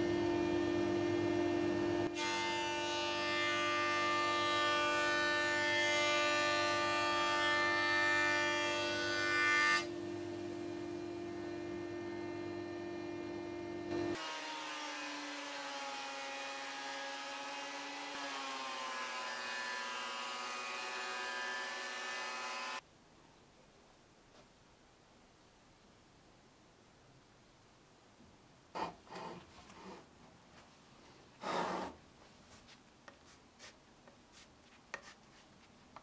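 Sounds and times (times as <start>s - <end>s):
jointer planing board: 13.9s - 22.8s.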